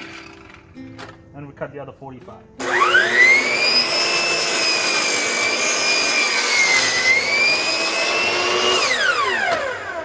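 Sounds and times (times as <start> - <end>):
miter saw whining: 2.6 - 10.0.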